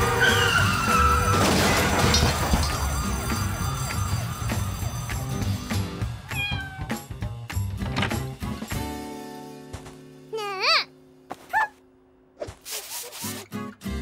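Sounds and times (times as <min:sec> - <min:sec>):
falling whistle: 0:00.0 - 0:01.5
background music: 0:00.0 - 0:11.3, 0:13.2 - 0:14.0
crash: 0:00.7 - 0:05.2.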